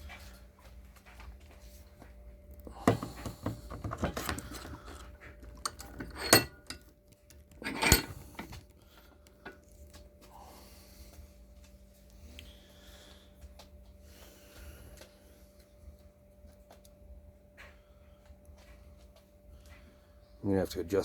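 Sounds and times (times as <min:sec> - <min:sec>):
metal tools clinking and rattling: 0:03.2 - 0:06.9, 0:07.5 - 0:08.6.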